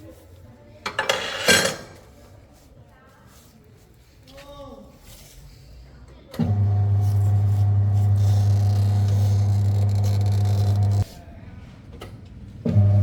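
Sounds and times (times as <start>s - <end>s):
electrical motor hum: 6.4s - 11.1s, 12.7s - 13.0s.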